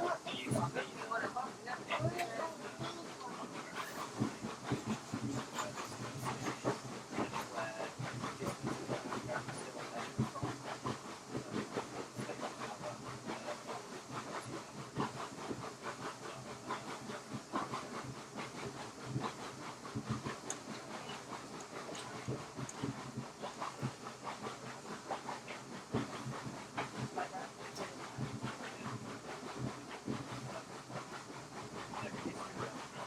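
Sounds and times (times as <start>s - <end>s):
steam hissing: 0.0s - 33.0s.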